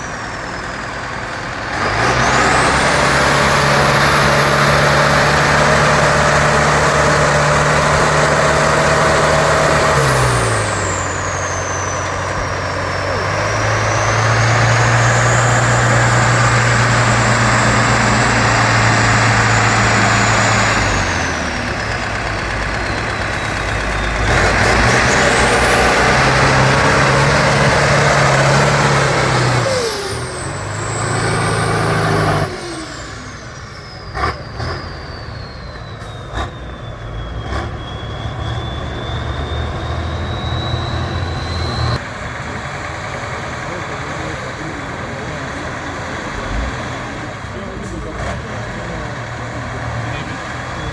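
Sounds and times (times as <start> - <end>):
diesel engine revving: 0.0 - 50.9
high whistle: 7.0 - 15.7, 32.5 - 42.0.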